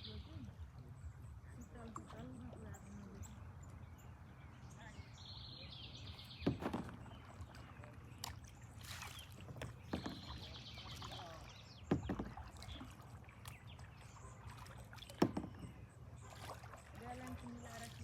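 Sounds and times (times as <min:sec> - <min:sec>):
paddle splashing in water: 0:05.3 - 0:18.0.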